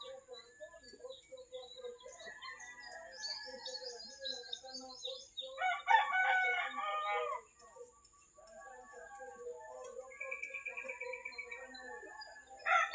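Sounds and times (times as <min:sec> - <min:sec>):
small birds chirping: 0:00.0 - 0:12.9
rooster crowing: 0:05.6 - 0:07.5, 0:12.6 - 0:12.9.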